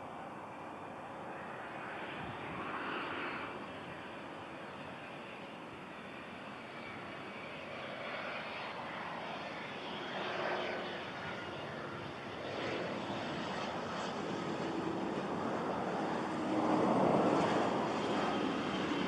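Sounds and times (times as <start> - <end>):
jet engines whooshing: 1.3 - 19.0.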